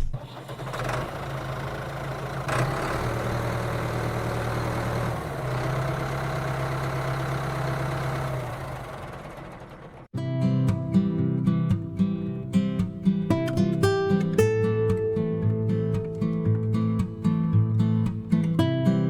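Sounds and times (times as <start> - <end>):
motor humming: 0.0 - 10.1.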